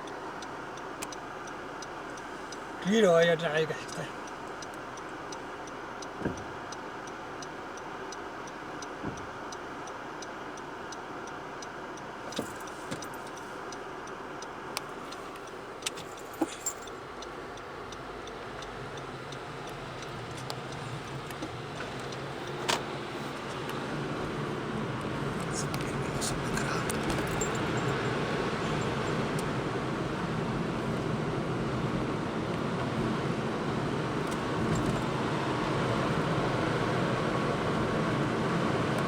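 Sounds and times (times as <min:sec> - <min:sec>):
faint regular ticking: 0:00.0 - 0:31.0
car road and engine noise: 0:00.0 - 0:39.0.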